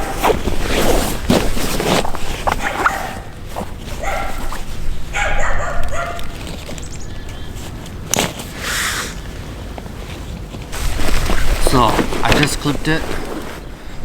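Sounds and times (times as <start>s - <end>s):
dog barking: 2.6s - 3.4s, 4.0s - 6.4s.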